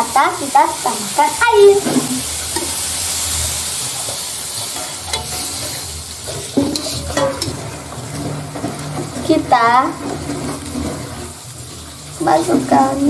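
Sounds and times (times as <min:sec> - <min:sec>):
food sizzling in oil: 0:00.0 - 0:13.0
metal spatula scraping wok: 0:01.7 - 0:13.0
spatula clinking on pan: 0:04.8 - 0:05.5, 0:06.4 - 0:07.6.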